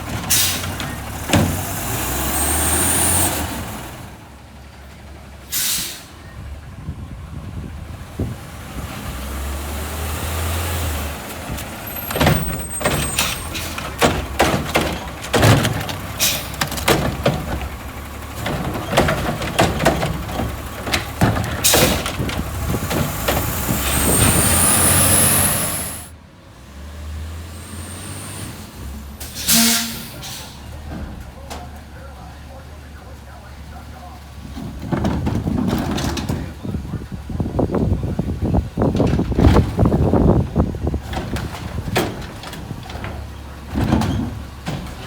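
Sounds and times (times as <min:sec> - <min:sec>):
garbage truck engine running: 0:00.0 - 0:45.0
air brake hiss: 0:05.5 - 0:06.2, 0:29.2 - 0:30.7
sharp bangs and clatters: 0:11.4 - 0:26.1.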